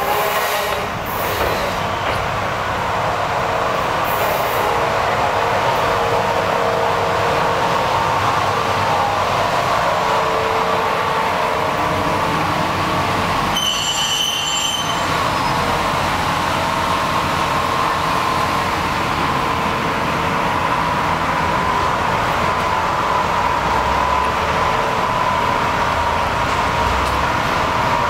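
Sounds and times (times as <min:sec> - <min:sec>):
high squeal: 0:13.5 - 0:15.8.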